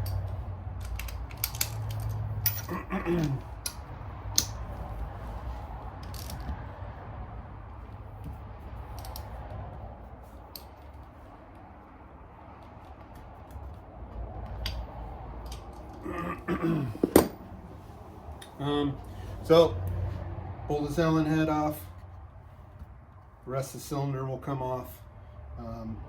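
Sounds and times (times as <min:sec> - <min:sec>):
hand tools clinking on metal: 0:00.0 - 0:03.8.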